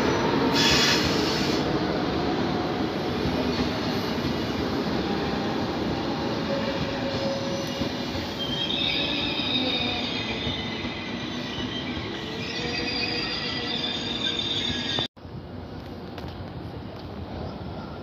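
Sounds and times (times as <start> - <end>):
train rumbling on tracks: 0.0 - 18.0
high wheel squeals: 7.3 - 15.1.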